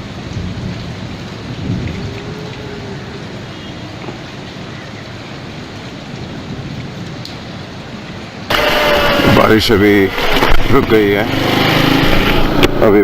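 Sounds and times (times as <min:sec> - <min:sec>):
low rumble of thunder: 0:00.0 - 0:03.5, 0:06.1 - 0:08.1
steady rain: 0:00.0 - 0:13.0.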